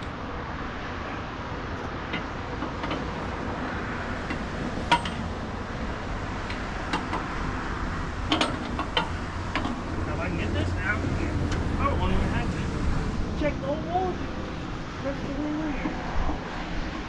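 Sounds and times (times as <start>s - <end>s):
steady low rumble: 0.0s - 17.0s
metal chains clinking: 4.2s - 5.8s.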